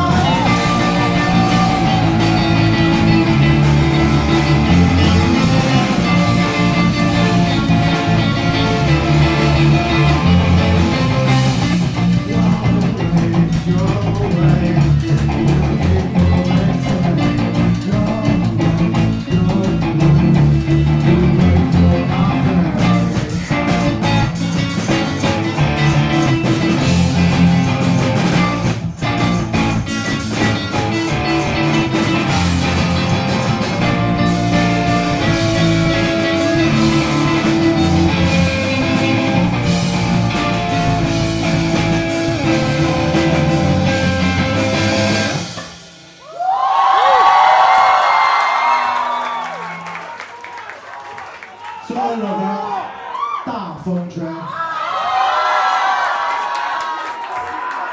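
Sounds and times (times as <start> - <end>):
electric guitars: 0.0 - 46.2
bass guitar: 0.0 - 49.8
drum kit: 0.0 - 49.8.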